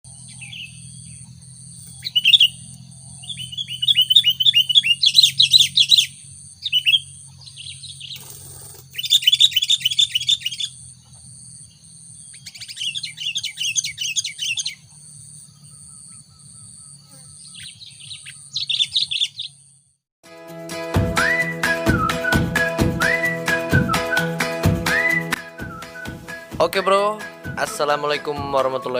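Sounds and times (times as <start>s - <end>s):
bulbul chattering: 0.2s - 19.8s.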